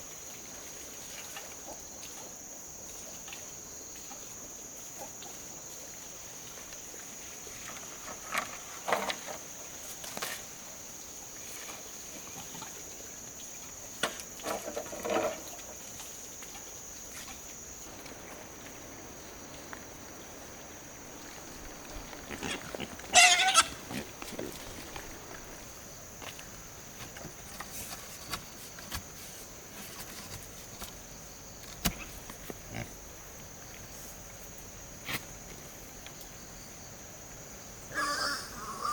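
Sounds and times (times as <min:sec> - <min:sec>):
high-pitched insect drone: 0:17.0 - 0:25.8
farm fowl calling: 0:17.9 - 0:25.8, 0:37.9 - 0:38.9.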